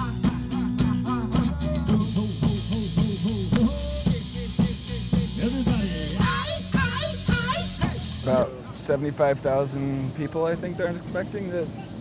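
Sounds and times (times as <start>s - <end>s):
sustained bass notes: 0.0s - 8.6s
rock beat on drum kit: 0.0s - 8.7s.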